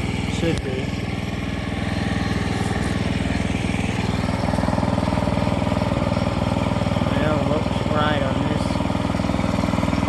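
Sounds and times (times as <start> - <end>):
small engine chugging: 0.0 - 10.0.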